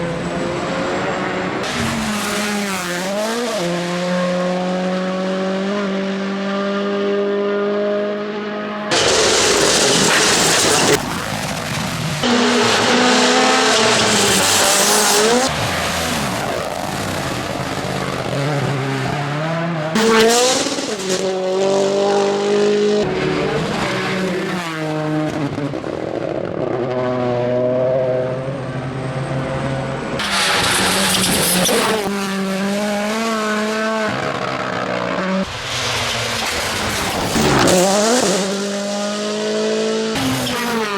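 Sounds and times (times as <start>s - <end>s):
rally car engines revving: 0.0s - 40.9s
tyre squeal: 30.2s - 32.1s.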